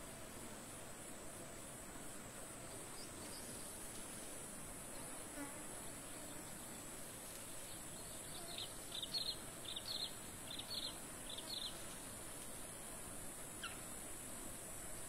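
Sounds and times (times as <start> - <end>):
high insect-like hiss: 0.0 - 15.0
small bird chirping: 7.7 - 11.9, 13.6 - 14.0.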